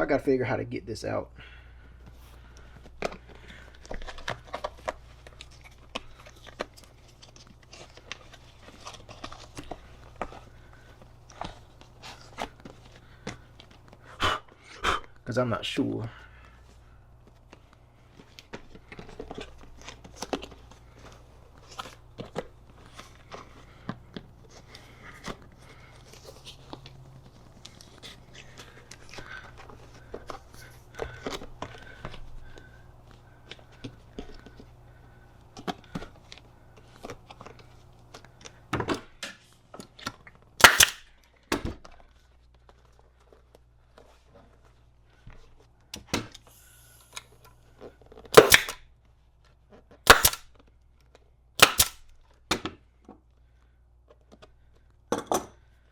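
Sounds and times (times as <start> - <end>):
sharp snaps: 40.6 - 41.0, 48.4 - 48.8, 50.1 - 50.5, 51.6 - 52.0.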